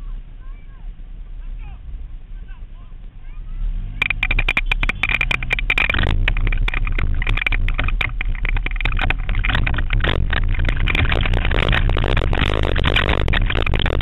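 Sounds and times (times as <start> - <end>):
racing car engine running hard: 0.0 - 14.0
high engine whine: 3.7 - 14.0
clattering knocks: 4.0 - 14.0.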